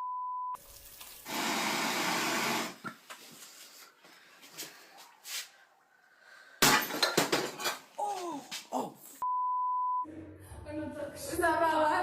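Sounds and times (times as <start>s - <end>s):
censor bleep: 0.0s - 0.6s, 9.2s - 10.1s
person shouting an exclamation: 8.0s - 9.1s.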